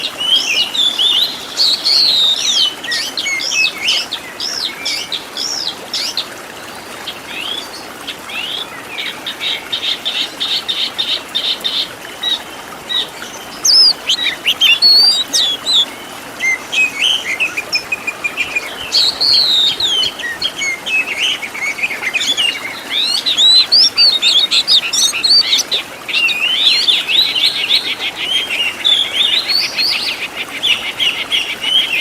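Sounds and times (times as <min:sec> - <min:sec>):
bird song whistles and chirps: 0:12.2 - 0:32.0
bird trill: 0:13.0 - 0:15.9.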